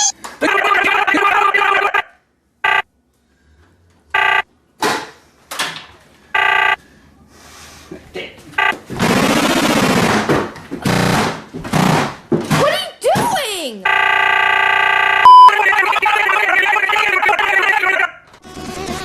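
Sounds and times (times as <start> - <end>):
pitch-bent distorted voice: 0.0 - 2.1, 15.5 - 18.2
cut bursts of held voice: 15.5 - 18.2.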